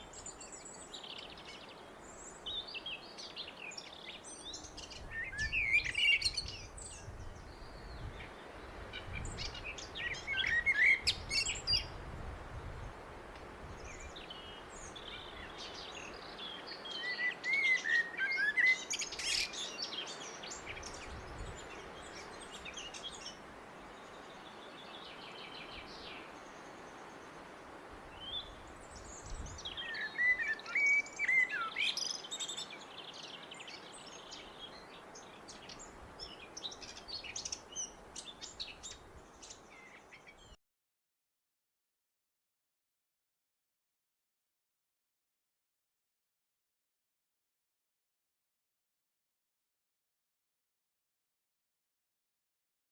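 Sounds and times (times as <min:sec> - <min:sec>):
blackbird singing: 0:00.0 - 0:08.2, 0:09.0 - 0:11.9, 0:13.8 - 0:23.4, 0:28.2 - 0:40.6.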